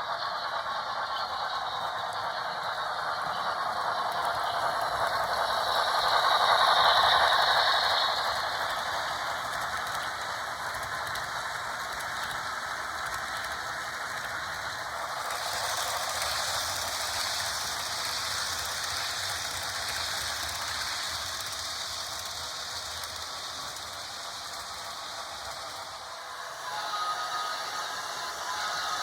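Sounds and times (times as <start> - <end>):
model train wheels clattering: 0.0 - 29.0
bright hiss: 1.2 - 29.0.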